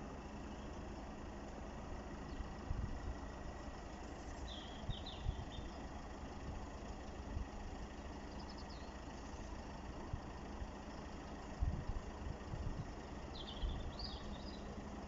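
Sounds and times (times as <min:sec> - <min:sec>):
low outdoor rumble: 0:00.0 - 0:15.0
small bird chirping: 0:00.4 - 0:00.9, 0:04.0 - 0:05.9, 0:08.2 - 0:09.6, 0:12.8 - 0:14.8.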